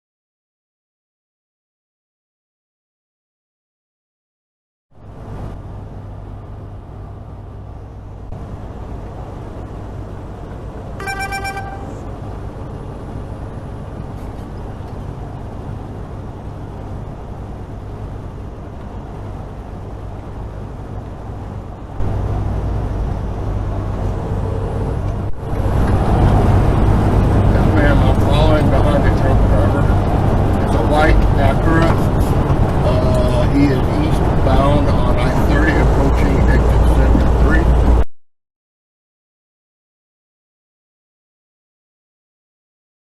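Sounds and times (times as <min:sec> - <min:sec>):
truck engine and road rumble: 0:04.9 - 0:38.1
short high beep: 0:11.0 - 0:12.0.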